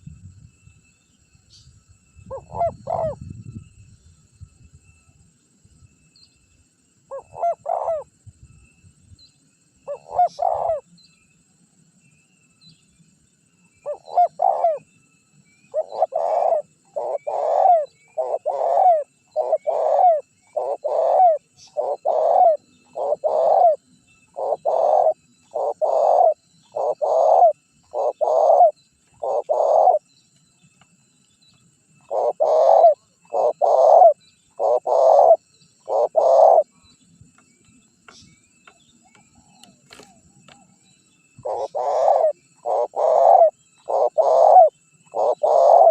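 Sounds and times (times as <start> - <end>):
dove cooing: 2.3 - 3.3, 7.1 - 8.1, 9.8 - 10.8, 13.8 - 14.9, 15.7 - 30.0, 32.0 - 36.8, 41.4 - 45.9.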